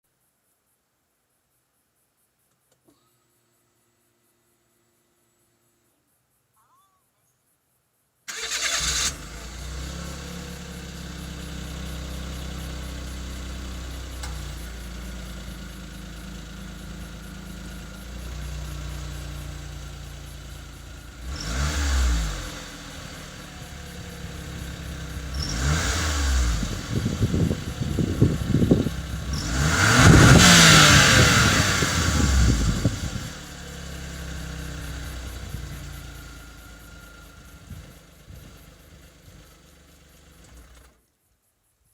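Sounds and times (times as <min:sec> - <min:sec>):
car engine idling and revving: 0:08.3 - 0:41.0.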